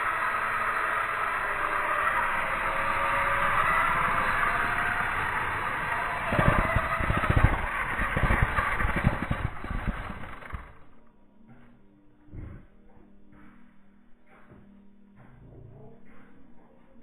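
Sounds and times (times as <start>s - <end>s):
toy helicopter rotors whirring: 0.0s - 10.9s.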